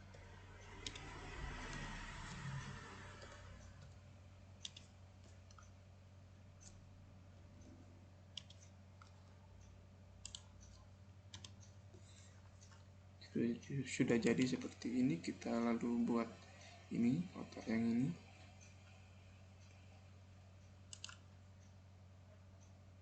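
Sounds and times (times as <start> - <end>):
faint electrical hum: 0.0 - 23.0
mouse clicks: 8.4 - 11.7, 20.9 - 21.2
keyboard keystrokes: 20.9 - 21.2.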